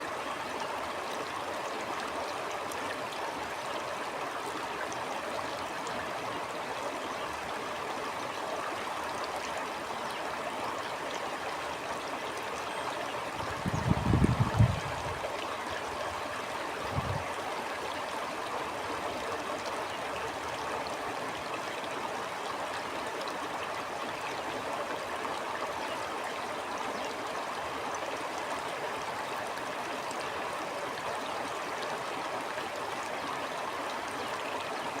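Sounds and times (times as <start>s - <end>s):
stream rushing and burbling: 0.0s - 35.0s.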